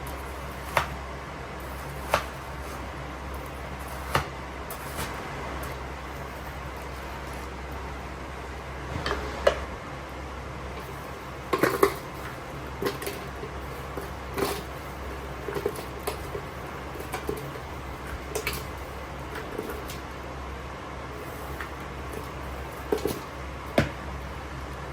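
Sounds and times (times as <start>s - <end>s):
steady low hum: 0.0s - 24.9s
dishes and utensils clinking: 10.8s - 14.7s.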